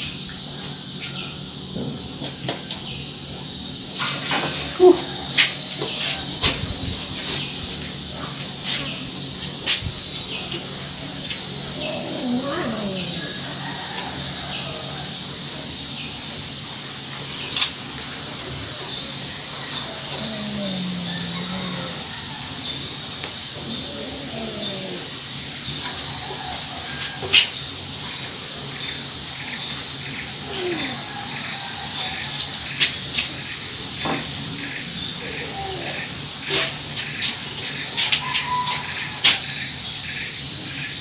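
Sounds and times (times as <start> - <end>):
insects droning: 0.0 - 41.0.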